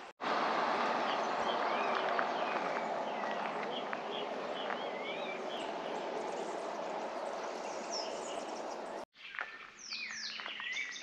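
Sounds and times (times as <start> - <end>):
steady outdoor hiss: 0.0 - 9.0
birds chirping: 0.0 - 11.0
whistled bird calls: 7.3 - 11.0.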